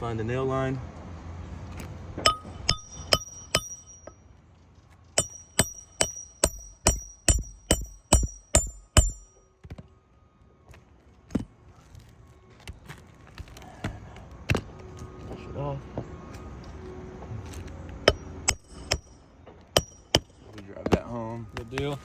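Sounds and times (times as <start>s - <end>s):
hammer striking nail: 2.3s - 4.1s, 5.2s - 9.8s, 19.8s - 21.9s.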